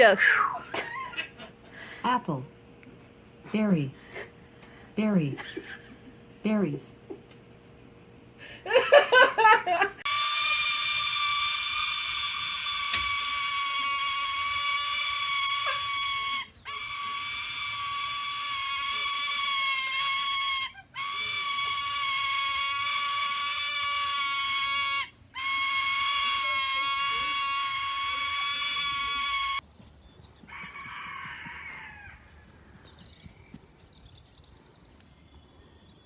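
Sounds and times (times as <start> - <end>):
bird high-pitched screeches: 10.0 - 29.6.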